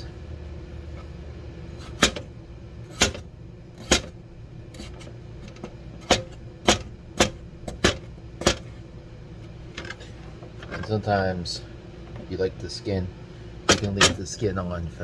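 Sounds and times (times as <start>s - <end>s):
knife chopping on cutting board: 1.8s - 2.3s, 2.9s - 3.2s, 3.8s - 4.1s, 6.0s - 8.6s.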